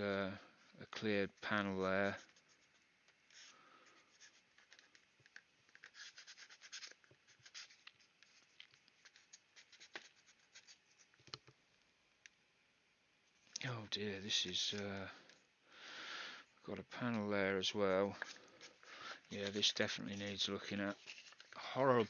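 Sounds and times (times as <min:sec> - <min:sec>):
tool scratching plastic model: 0:02.0 - 0:11.4, 0:18.2 - 0:22.0.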